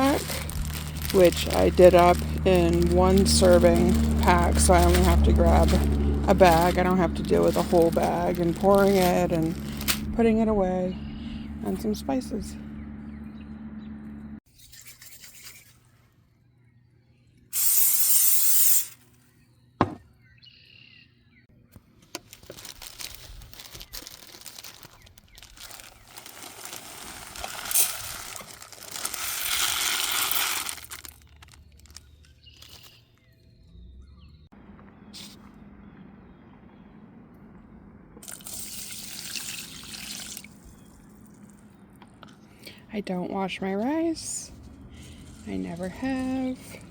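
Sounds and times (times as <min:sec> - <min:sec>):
bag rustling: 0:00.0 - 0:10.2, 0:22.2 - 0:33.0
rice pouring into a pot: 0:26.1 - 0:31.2.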